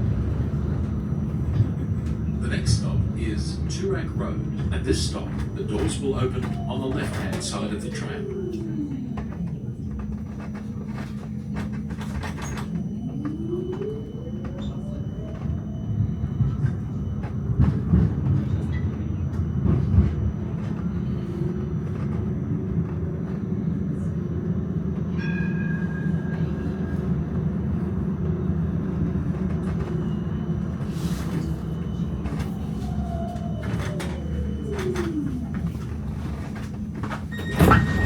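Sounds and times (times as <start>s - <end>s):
tram falling whine: 0.0s - 38.0s
tram rumbling along track: 0.0s - 38.0s
tram knocks: 33.4s - 38.0s.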